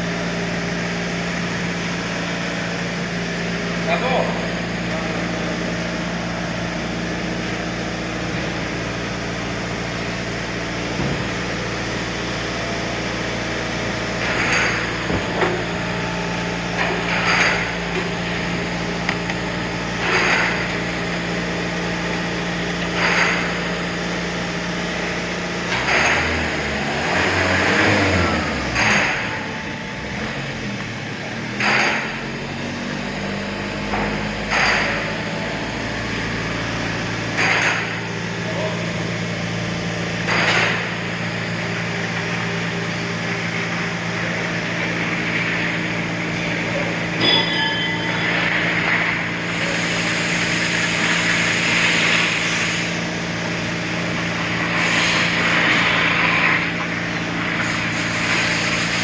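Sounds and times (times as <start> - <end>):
car engine idling: 0.0 - 59.0
short clinks or knocks: 47.2 - 48.6.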